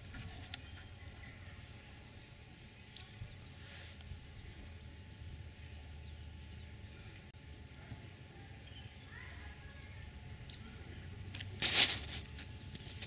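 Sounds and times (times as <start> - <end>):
steady low rumble: 0.0 - 13.0
short high bird chirps: 2.9 - 3.3.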